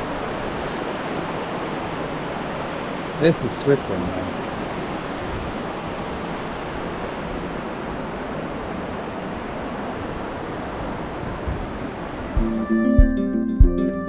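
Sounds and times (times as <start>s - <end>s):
river rushing through gorge: 0.0s - 12.4s
harp-like plucked string music: 12.4s - 14.0s.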